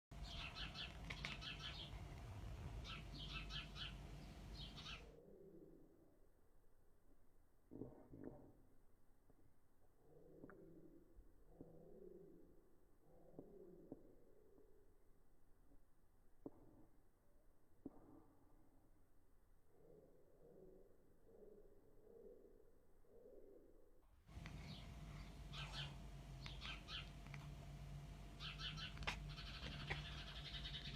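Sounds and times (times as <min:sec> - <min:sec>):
low background rumble: 0:00.1 - 0:06.5, 0:24.3 - 0:30.9
low steady hum: 0:00.1 - 0:07.7, 0:19.1 - 0:30.9
cat chirping: 0:00.2 - 0:02.1, 0:24.4 - 0:27.6, 0:28.4 - 0:30.9.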